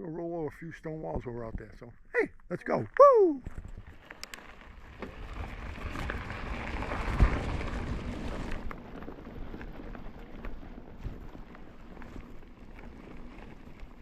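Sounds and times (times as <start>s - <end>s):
bike tyres on forest trail: 0.2s - 14.0s
wind noise: 3.3s - 14.0s.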